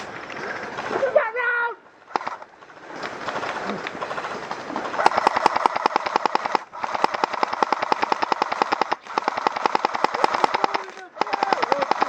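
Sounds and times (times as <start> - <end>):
airsoft gun firing full auto: 2.1 - 2.4, 5.0 - 12.0.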